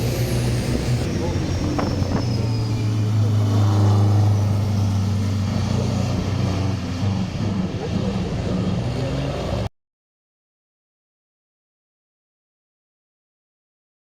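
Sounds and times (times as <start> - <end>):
vehicle engine humming: 0.0 - 9.7.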